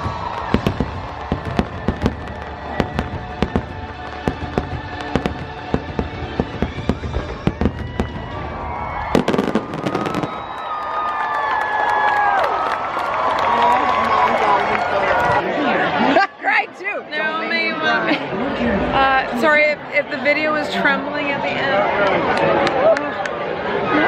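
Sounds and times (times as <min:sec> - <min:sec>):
fireworks bangs and crackles: 0:00.0 - 0:10.8.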